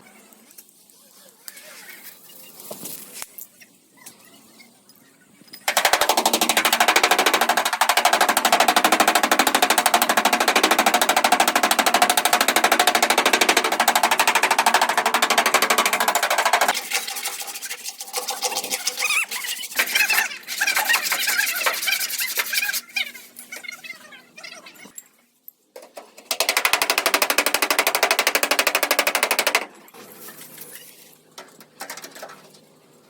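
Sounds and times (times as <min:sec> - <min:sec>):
knocks and clatter: 0:05.6 - 0:17.4
air tool hammering metal: 0:05.7 - 0:17.6.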